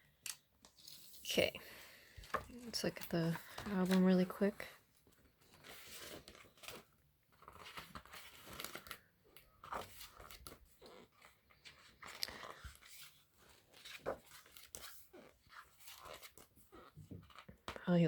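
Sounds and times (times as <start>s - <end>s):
pages turning rustle: 0.2s - 17.8s.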